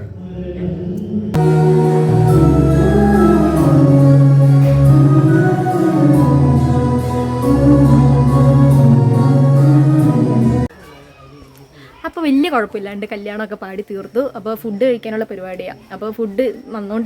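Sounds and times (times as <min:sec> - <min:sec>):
choir singing a hymn: 0:00.4 - 0:10.7
held bass line: 0:01.4 - 0:10.7
organ-like chords: 0:01.4 - 0:10.7.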